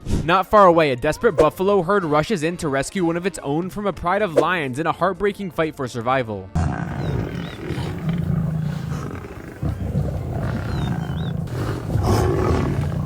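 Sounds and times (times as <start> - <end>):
lions growling and roaring: 6.6 - 13.0.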